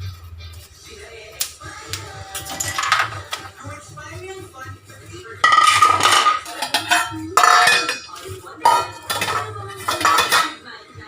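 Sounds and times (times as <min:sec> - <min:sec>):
metal pots and dishes clattering: 0:02.3 - 0:03.6, 0:05.4 - 0:10.7.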